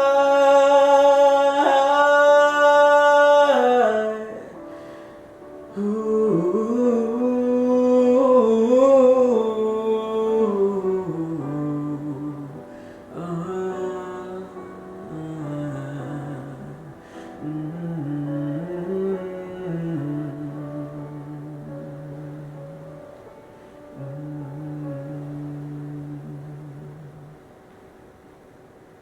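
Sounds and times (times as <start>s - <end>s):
person singing wordless held notes: 0.0s - 5.1s.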